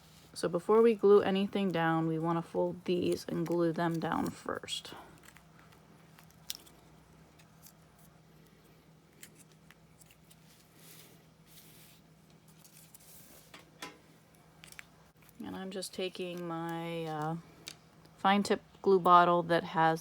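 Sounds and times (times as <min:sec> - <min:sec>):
low steady hum: 0:00.0 - 0:20.0
soft paper rustles: 0:02.8 - 0:13.6.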